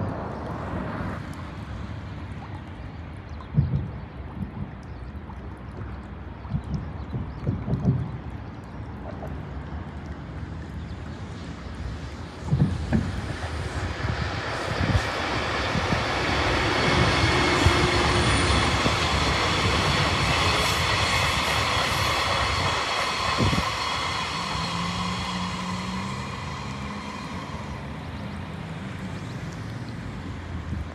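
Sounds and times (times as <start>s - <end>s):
freight train rolling past: 11.9s - 29.2s.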